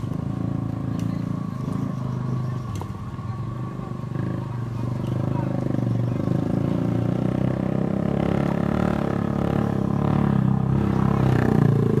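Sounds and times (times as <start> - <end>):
car engine labouring at high revs: 0.0 - 12.0.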